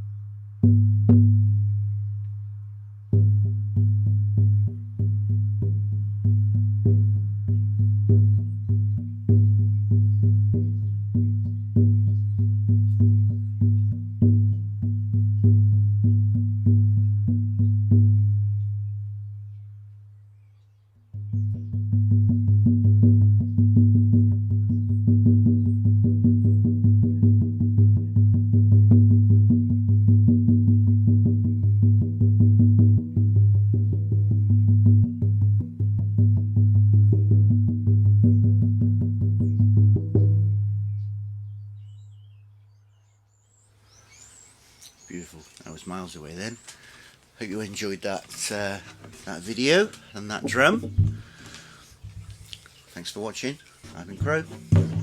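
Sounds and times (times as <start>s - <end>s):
frame drum beating with deep tone: 0.0s - 2.4s, 3.1s - 19.4s, 21.1s - 41.4s, 47.4s - 55.0s.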